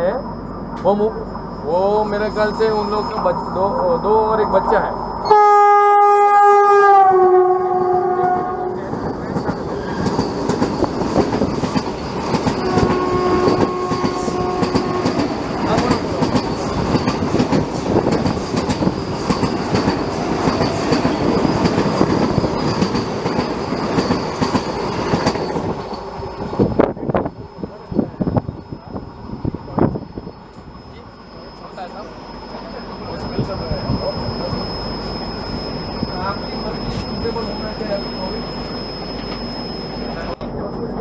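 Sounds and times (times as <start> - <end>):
high whine: 0.0 - 41.0
train horn: 5.2 - 9.0, 12.5 - 15.5
train wheels rattling on rails: 7.7 - 41.0.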